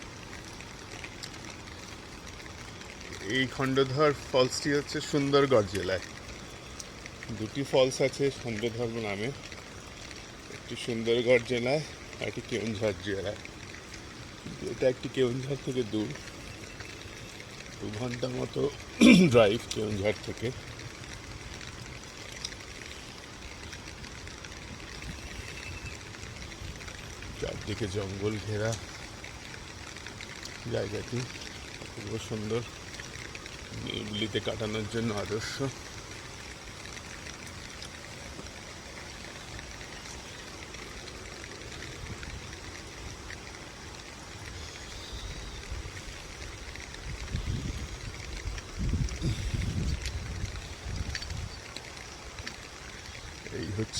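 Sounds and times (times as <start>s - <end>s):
rain: 0.0s - 53.9s
waterfall hiss: 0.0s - 53.9s
wind buffeting microphone: 23.2s - 31.3s, 40.5s - 53.9s.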